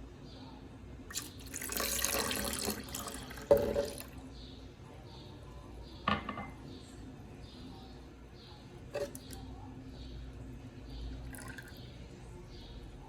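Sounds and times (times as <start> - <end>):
liquid pouring: 1.1 - 4.2, 11.2 - 11.8.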